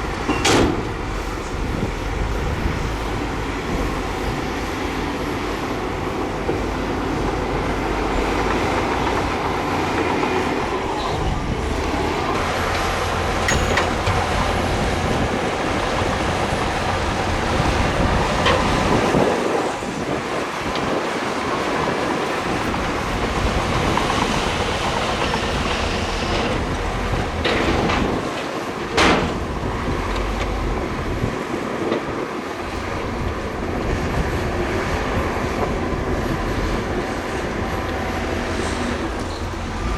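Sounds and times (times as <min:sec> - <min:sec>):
bulldozer diesel engine: 0:00.0 - 0:39.9
steel tracks clattering and squealing: 0:00.0 - 0:39.9
metallic clanks: 0:12.7 - 0:14.4.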